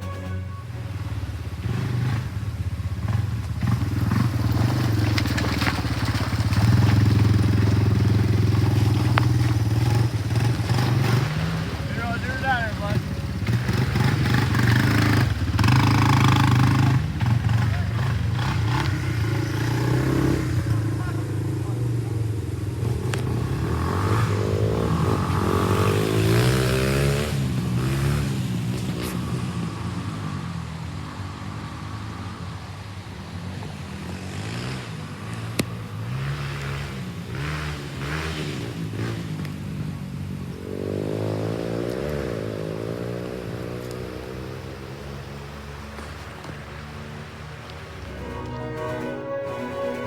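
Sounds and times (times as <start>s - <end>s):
motor engine revving: 0.0s - 30.6s.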